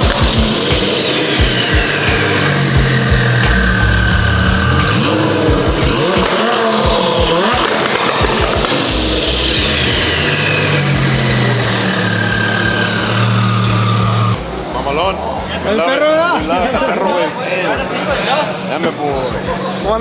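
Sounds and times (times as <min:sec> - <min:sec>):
high whine: 0:00.0 - 0:15.3
car engines revving: 0:00.0 - 0:15.8.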